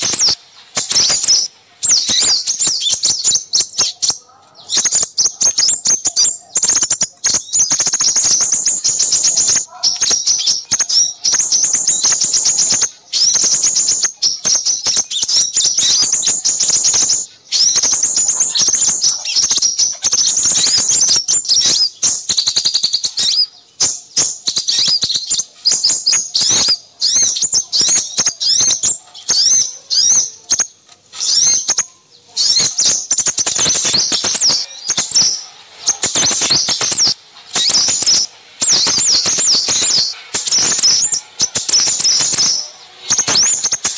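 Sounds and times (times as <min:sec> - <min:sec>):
small birds chirping and twittering: 0:00.0 - 0:43.9.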